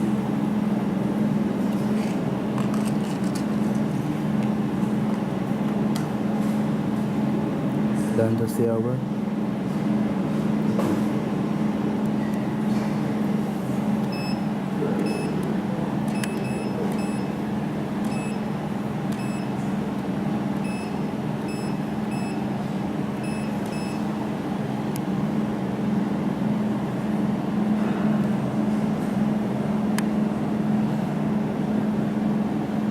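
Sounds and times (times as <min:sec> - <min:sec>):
short high beeps: 0:14.1 - 0:14.4, 0:15.0 - 0:15.4, 0:16.1 - 0:17.4, 0:19.2 - 0:19.6, 0:20.6 - 0:22.4, 0:23.2 - 0:24.1.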